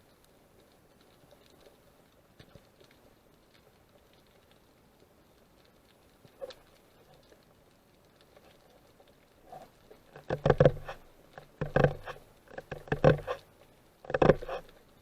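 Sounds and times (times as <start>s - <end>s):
underwater clicks and knocks: 9.5s - 14.8s.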